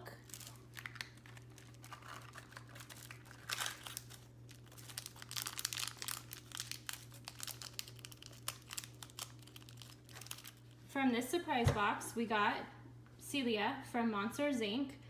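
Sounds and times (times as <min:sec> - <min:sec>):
packaging crinkling and rustling: 0:00.1 - 0:10.8.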